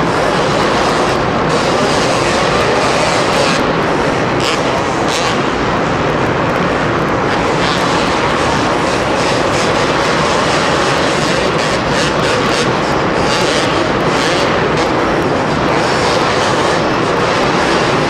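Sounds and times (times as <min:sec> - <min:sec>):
motorcycle engines droning: 0:00.0 - 0:18.0.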